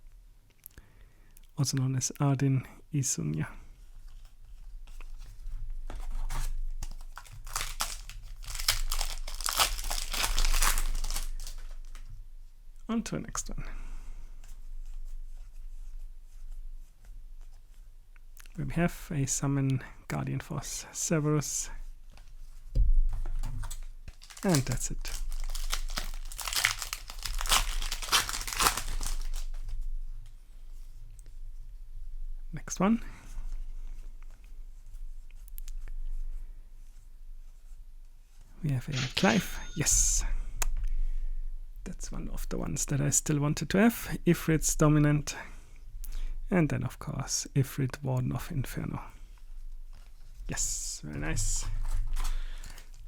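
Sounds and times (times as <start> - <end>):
foil wrapper crinkling: 6.2 - 12.1, 23.6 - 29.8, 52.0 - 53.0.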